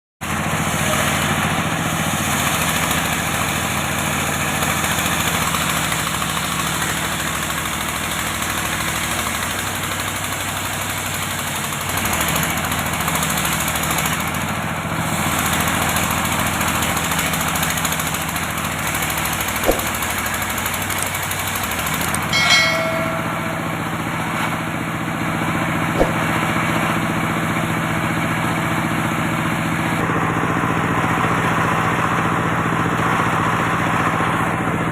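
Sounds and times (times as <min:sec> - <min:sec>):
brief knocks: 0:19.6 - 0:20.0, 0:26.0 - 0:26.2.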